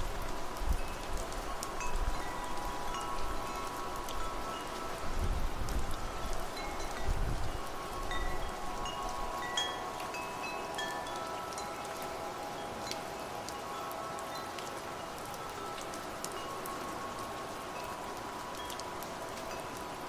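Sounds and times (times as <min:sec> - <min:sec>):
low wind gust rumble: 0:00.0 - 0:13.6
rain patter: 0:00.0 - 0:20.0
wind chimes ringing: 0:00.3 - 0:20.0.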